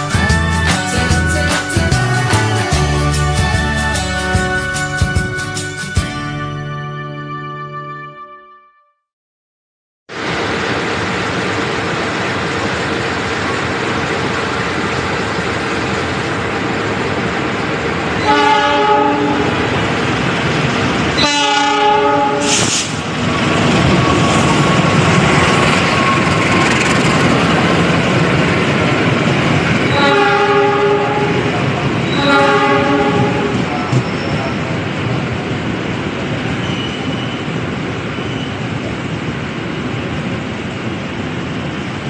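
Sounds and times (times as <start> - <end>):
train rumbling past: 10.1 - 42.0
locomotive horn blasts: 18.2 - 19.7, 21.2 - 22.9, 29.9 - 33.7.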